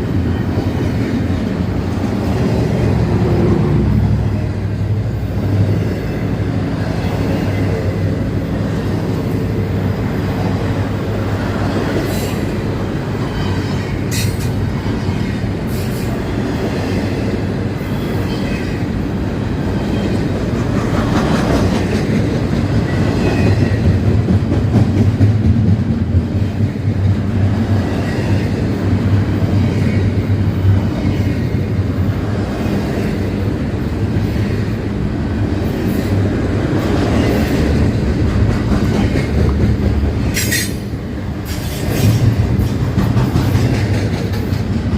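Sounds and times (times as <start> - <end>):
wheels rumbling on rail: 0.0 - 44.9.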